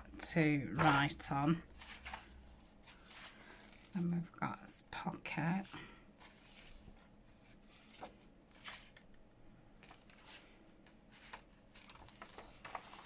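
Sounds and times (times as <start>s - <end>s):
paper pages rustling: 0.7s - 4.0s, 6.2s - 9.2s, 9.8s - 13.0s.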